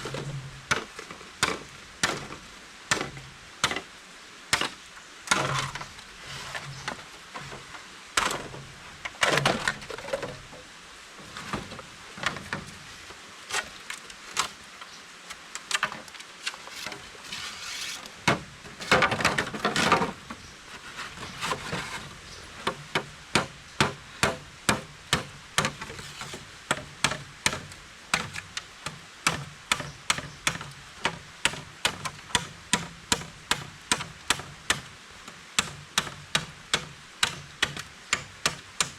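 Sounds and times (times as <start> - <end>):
scraping on wood: 4.6 - 10.6, 15.7 - 28.6.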